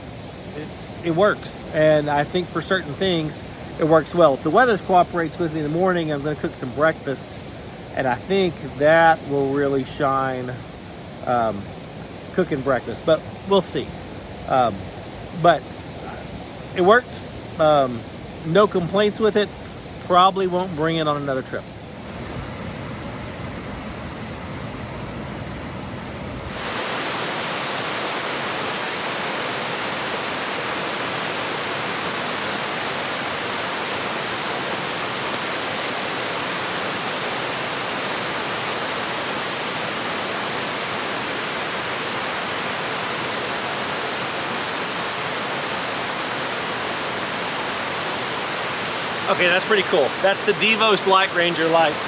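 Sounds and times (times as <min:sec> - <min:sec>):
heavy rain hiss: 0:00.0 - 0:52.0
low rumbling noise: 0:21.9 - 0:27.1.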